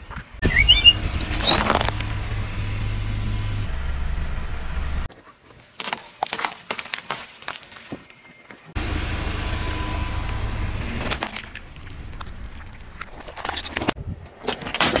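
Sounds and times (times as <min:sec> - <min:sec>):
car rolling rumble: 0:00.4 - 0:05.1, 0:08.8 - 0:13.2
things crushed under tyre: 0:01.2 - 0:02.1, 0:10.8 - 0:13.1.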